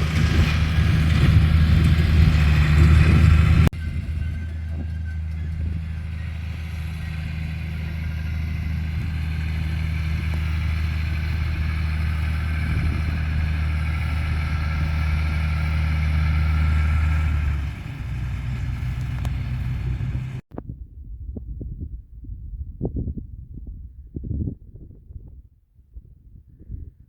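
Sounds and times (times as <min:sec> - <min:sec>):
tractor engine running: 0:00.0 - 0:20.4.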